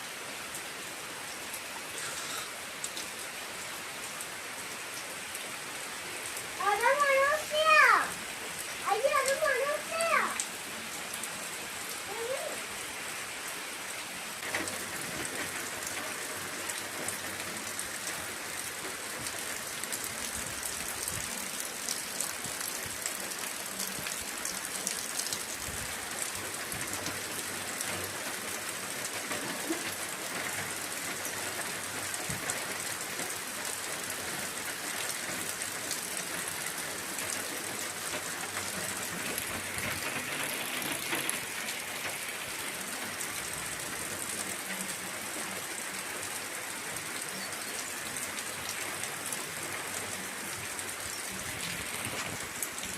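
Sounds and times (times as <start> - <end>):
steady rain hiss: 0.0 - 52.9
rain drop ticks: 2.0 - 3.2, 6.7 - 10.5, 14.4 - 44.8.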